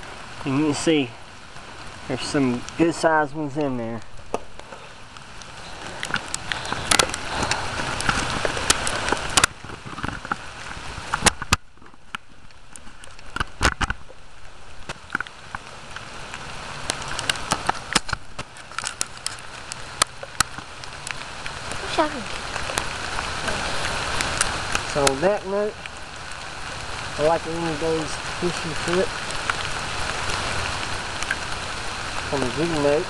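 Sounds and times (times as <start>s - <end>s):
hard rain on water and leaves: 0.0s - 33.0s.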